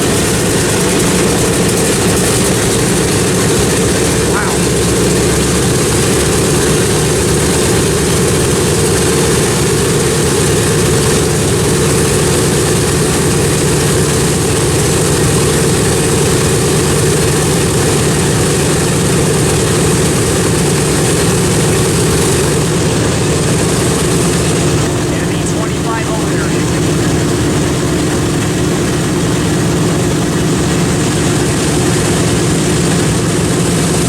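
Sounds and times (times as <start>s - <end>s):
propeller plane engines running: 0.0s - 34.0s.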